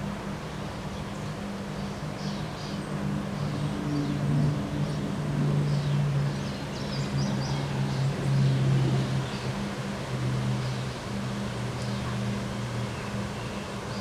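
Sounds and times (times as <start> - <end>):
wind: 0.0 - 14.0.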